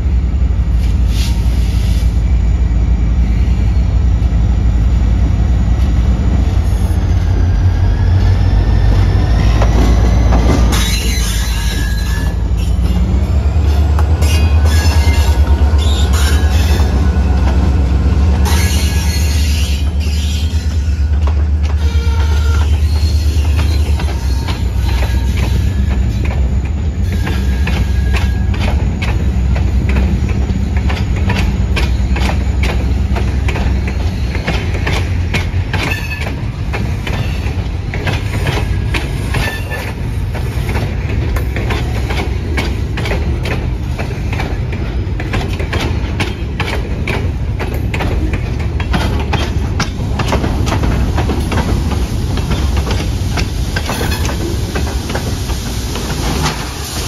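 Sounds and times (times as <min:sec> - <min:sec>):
low diesel locomotive rumble: 0:00.0 - 0:57.0
wheels clicking over rail joints: 0:22.6 - 0:56.8.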